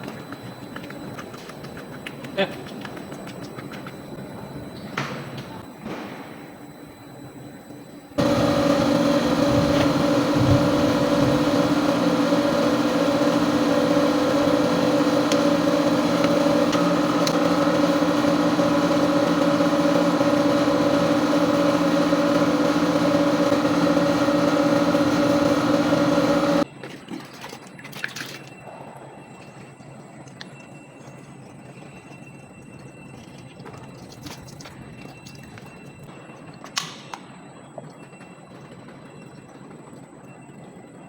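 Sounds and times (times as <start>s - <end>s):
motor humming: 6.5s - 26.6s.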